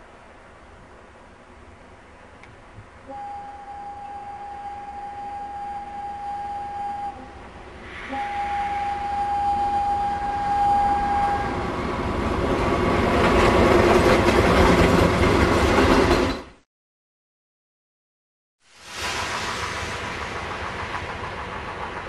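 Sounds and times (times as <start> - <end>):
locomotive engine noise: 1.6 - 16.5, 18.9 - 22.0
train wheels rushing on rail: 2.2 - 16.6, 18.8 - 22.0.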